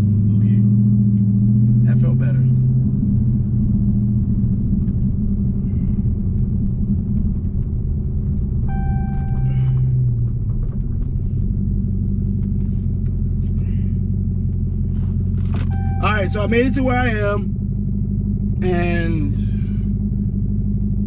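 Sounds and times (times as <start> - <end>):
engine low rumble: 0.0 - 21.0
electronic beep: 8.7 - 9.8, 15.7 - 17.1.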